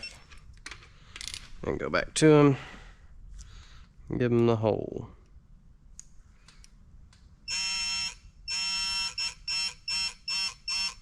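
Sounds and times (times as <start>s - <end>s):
torque wrench beeping: 7.5s - 11.0s.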